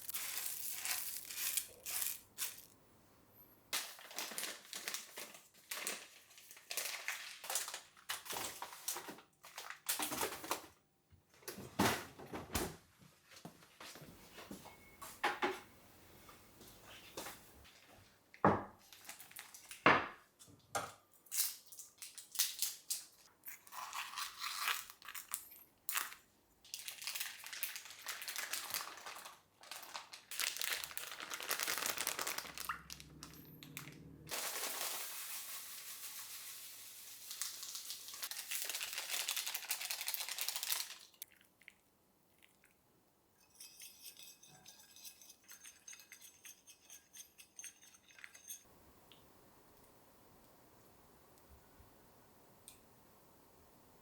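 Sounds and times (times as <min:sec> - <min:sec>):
plastic packaging crinkling: 0:00.0 - 0:02.8, 0:03.8 - 0:10.5, 0:24.1 - 0:41.4.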